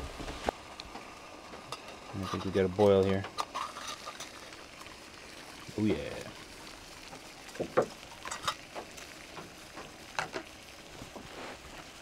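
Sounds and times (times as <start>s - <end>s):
stove hissing: 0.0s - 12.0s
water boiling in a pot: 0.0s - 12.0s
pot knocks and clinks: 7.6s - 8.7s.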